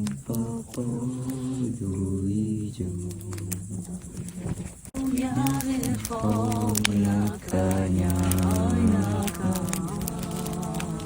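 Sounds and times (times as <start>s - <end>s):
group of voices singing: 0.0s - 11.0s.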